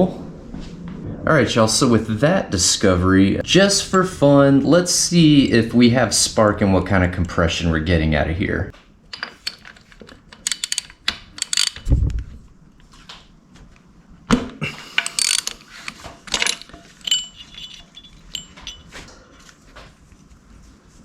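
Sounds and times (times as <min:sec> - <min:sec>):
tools clanking: 0:09.1 - 0:11.9, 0:14.7 - 0:19.6
ratchet wrench clicking: 0:10.3 - 0:11.9, 0:15.0 - 0:15.6.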